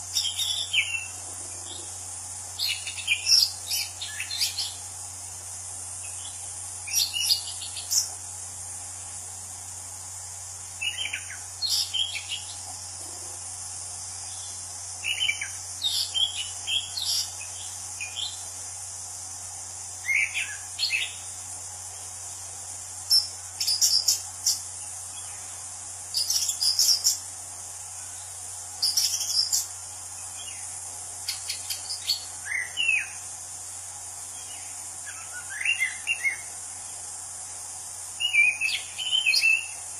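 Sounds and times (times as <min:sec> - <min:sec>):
high background hiss: 0:00.0 - 0:39.9.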